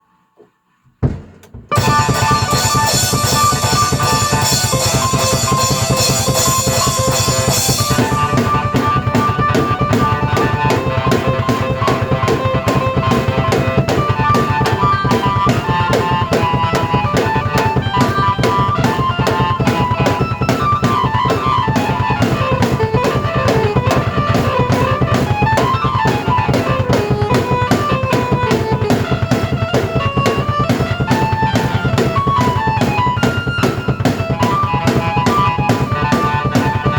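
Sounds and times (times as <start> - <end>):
drum kit beat: 1.0 - 36.9
keyboard melody: 1.0 - 36.9.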